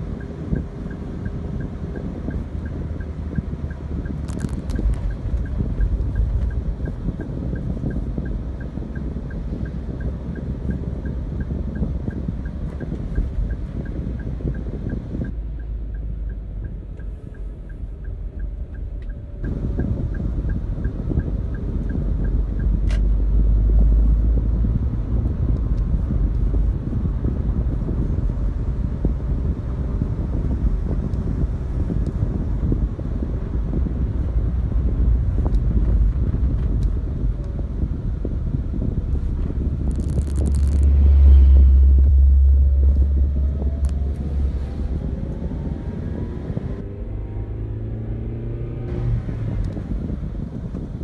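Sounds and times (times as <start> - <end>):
faint steady ticking: 0.0 - 27.4
vehicle engine rumble: 0.0 - 51.0
wind buffeting microphone: 0.0 - 51.0.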